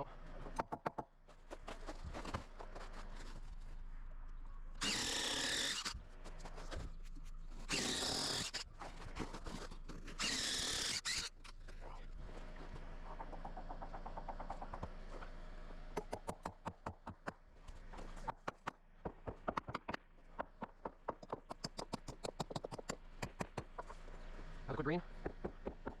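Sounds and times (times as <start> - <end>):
power drill bursts: 4.8 - 5.9, 7.7 - 8.6, 10.2 - 11.3.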